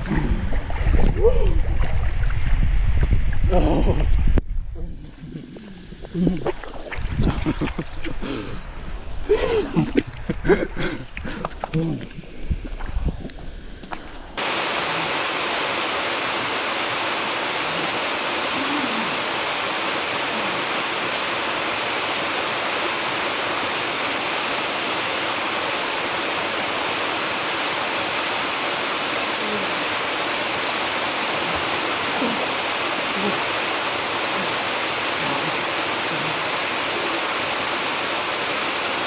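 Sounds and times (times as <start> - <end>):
waterfall rushing: 14.4 - 39.0.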